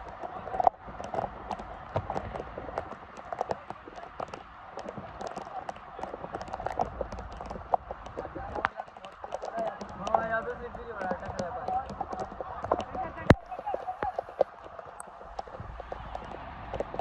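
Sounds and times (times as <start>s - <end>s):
running footsteps: 0.0s - 17.0s.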